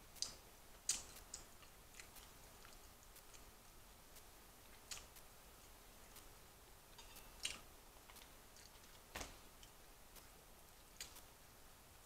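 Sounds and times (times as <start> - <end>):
chewing clicks and mouth noise: 0.2 - 3.5, 7.4 - 9.0.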